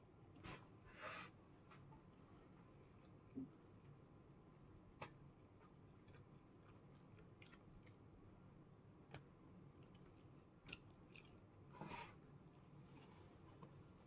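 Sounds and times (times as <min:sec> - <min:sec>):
faint chewing: 0:05.0 - 0:13.8.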